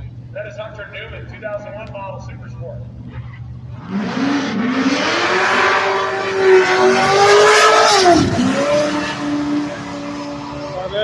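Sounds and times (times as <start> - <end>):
drag racing car engines accelerating: 0.0 - 11.0.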